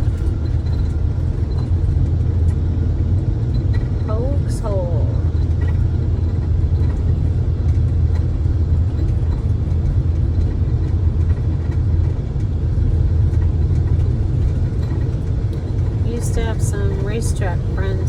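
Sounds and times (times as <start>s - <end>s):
vehicle engine and road rumble: 0.0s - 18.0s.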